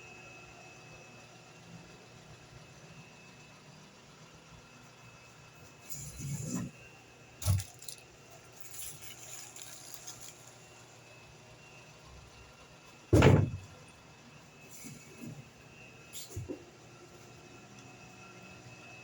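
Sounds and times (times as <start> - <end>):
paper rustle: 7.4 - 10.9
heavy thump: 13.1 - 13.8.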